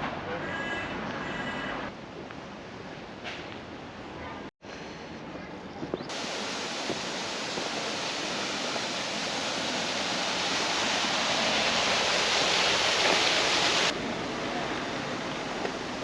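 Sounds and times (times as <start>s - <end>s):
rushing water roar: 6.1s - 16.0s.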